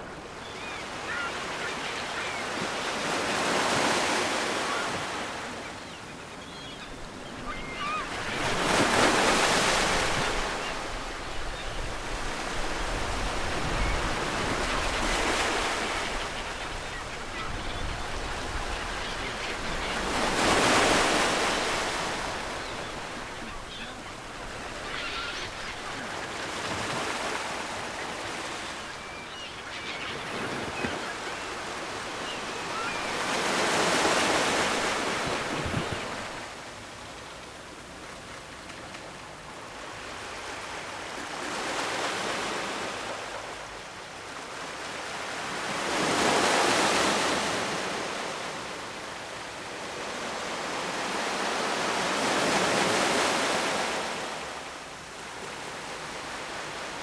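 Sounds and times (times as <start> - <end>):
waves breaking on shore: 7.3 - 36.6.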